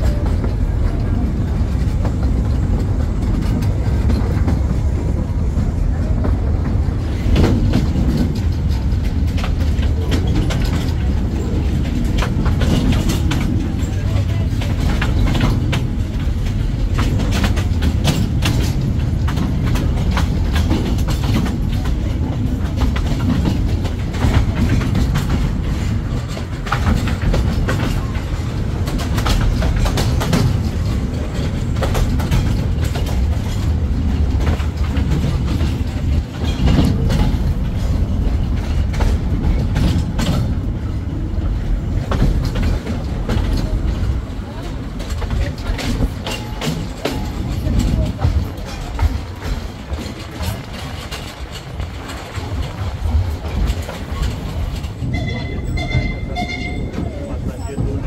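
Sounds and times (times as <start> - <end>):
train carriages rumbling: 0.0 - 58.0
wheels clattering on rails: 0.0 - 58.0.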